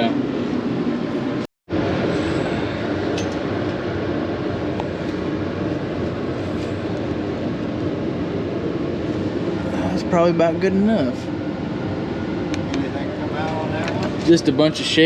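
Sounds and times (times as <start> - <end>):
motor running with low hum: 0.0 - 15.0.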